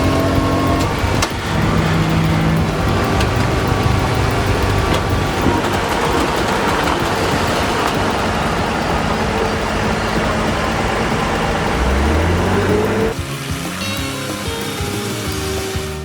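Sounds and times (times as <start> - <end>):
truck engine running under load: 0.0 - 15.9
road and traffic noise: 0.0 - 16.0.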